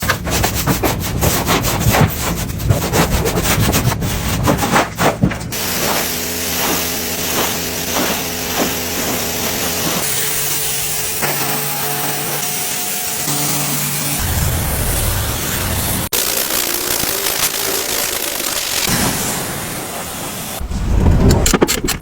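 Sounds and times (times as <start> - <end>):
brush scrubbing vehicle surface: 0.1 - 10.1.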